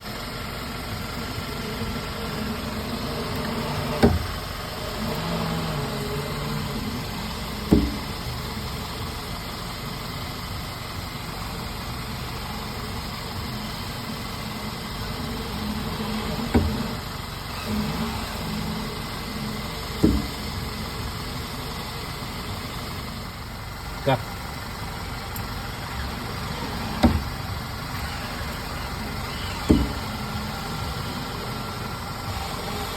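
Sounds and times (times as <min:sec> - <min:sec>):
vehicle engine idling: 0:00.0 - 0:32.9
sharp clunk: 0:07.7 - 0:08.2, 0:20.0 - 0:20.4, 0:29.6 - 0:30.2.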